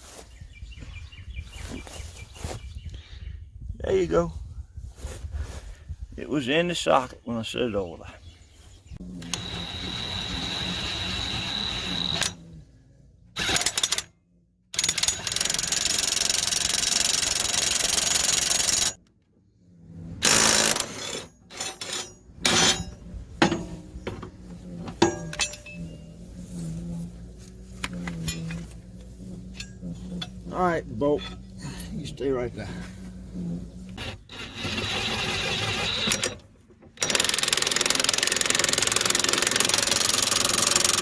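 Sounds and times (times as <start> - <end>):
impact wrench running in bursts: 9.2 - 12.4, 13.4 - 14.1, 14.8 - 19.0, 20.2 - 23.0, 33.9 - 36.4, 37.0 - 41.0.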